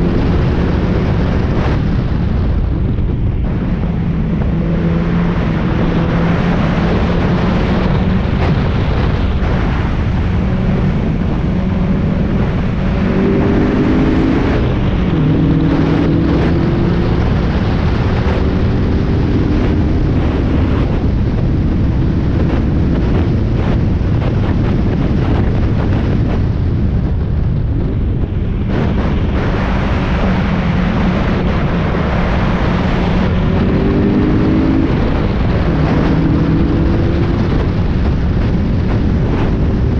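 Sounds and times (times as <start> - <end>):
road rumble: 0.0 - 39.9
wind noise: 0.0 - 39.9
car engine revving hard: 9.4 - 21.1, 28.7 - 38.0.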